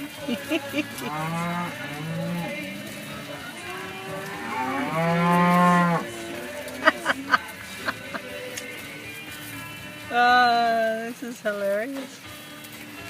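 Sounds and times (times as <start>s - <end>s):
cattle mooing: 0.9s - 8.0s.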